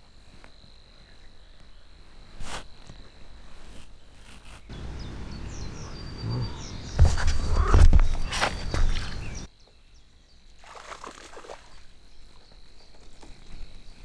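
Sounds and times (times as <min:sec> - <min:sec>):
bird chirps: 0:04.2 - 0:10.5
thumps near microphone: 0:06.9 - 0:09.5.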